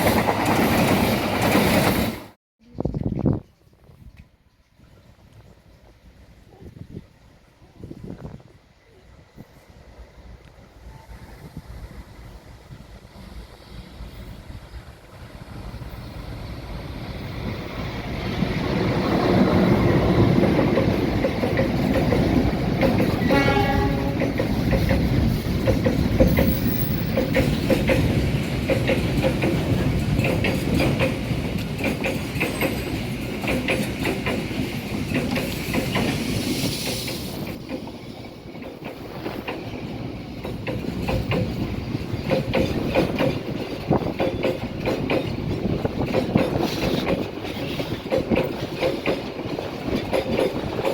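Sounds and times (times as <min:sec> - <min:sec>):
train wheels clicking over rails: 0:00.0 - 0:02.4, 0:11.9 - 0:50.9
train horn blast: 0:23.2 - 0:24.4.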